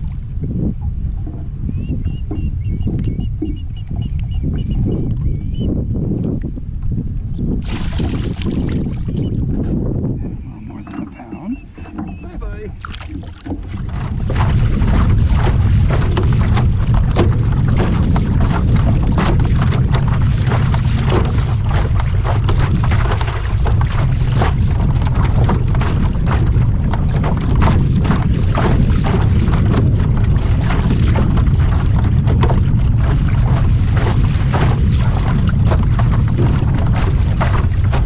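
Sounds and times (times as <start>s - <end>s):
water splashing against kayak: 0.0s - 38.0s
wind buffeting microphone: 0.0s - 38.0s.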